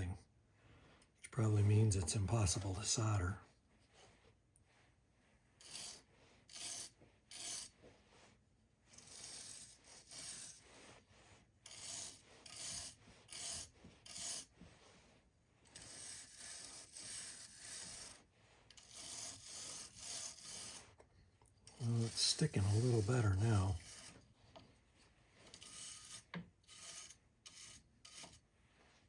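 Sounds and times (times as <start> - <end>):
filing metal parts: 5.6 - 7.8, 8.9 - 10.8, 11.6 - 14.6, 15.7 - 21.0, 21.6 - 24.2, 25.4 - 28.4.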